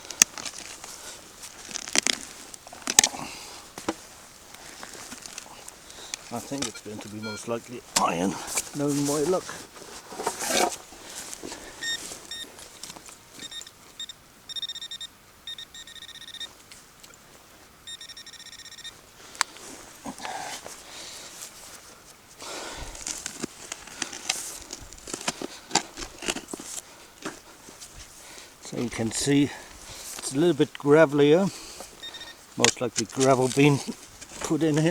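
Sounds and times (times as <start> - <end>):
digging in gravelly soil: 0.0 - 14.0, 18.9 - 34.9
metal detector beeping: 6.3 - 9.3, 11.8 - 12.5, 13.4 - 16.6, 17.8 - 19.0, 31.9 - 33.4.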